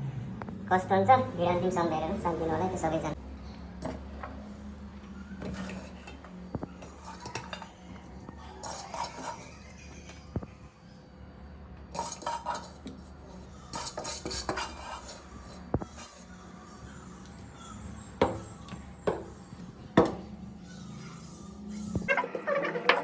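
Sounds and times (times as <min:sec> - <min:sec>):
metal utensils clinking on pots: 0:06.8 - 0:07.9, 0:08.6 - 0:09.8, 0:11.9 - 0:16.3.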